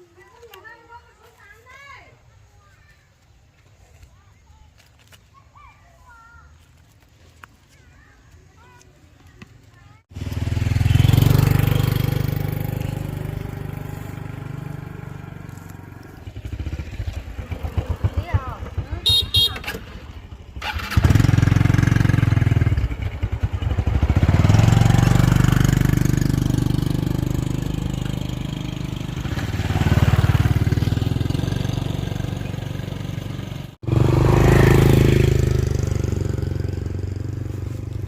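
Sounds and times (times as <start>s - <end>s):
small motorcycle engine running: 10.1s - 38.0s.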